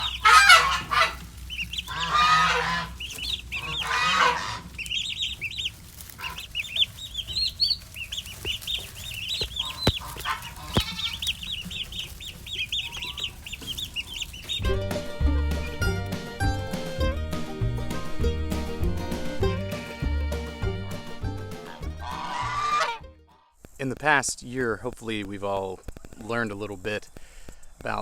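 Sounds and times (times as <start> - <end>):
chicken squawks: 0.0 - 14.8, 21.7 - 23.4
chicks peeping: 0.0 - 17.1.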